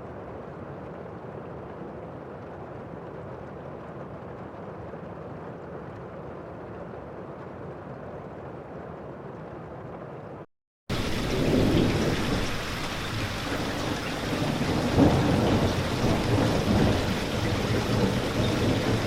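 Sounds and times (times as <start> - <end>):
heavy rain: 10.9 - 19.0
thunder rumble: 10.9 - 19.0.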